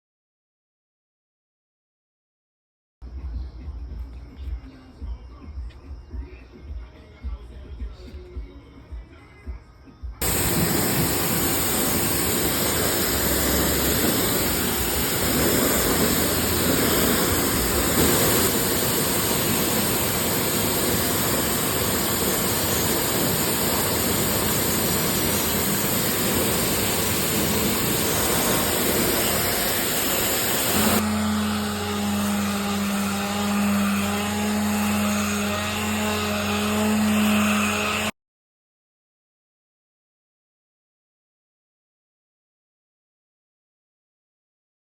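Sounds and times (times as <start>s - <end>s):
pressure washer spraying water: 10.2s - 37.2s
hand sander motor humming: 10.2s - 38.1s.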